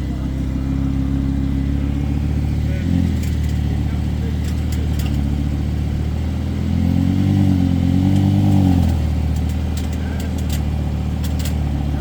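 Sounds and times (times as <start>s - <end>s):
car engine idling and revving: 0.0s - 12.0s.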